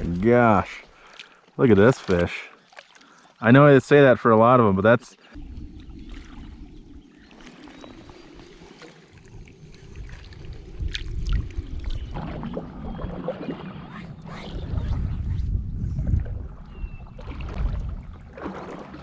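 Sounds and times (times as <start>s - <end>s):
lake water splashing: 0.0s - 19.0s
wind rumbling on microphone: 5.4s - 18.4s.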